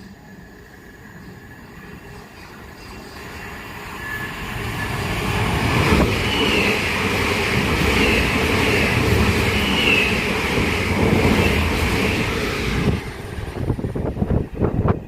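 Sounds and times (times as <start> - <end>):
wavering high squeal: 0.0 - 6.9, 9.4 - 10.3
train wheels on rail: 0.0 - 15.0.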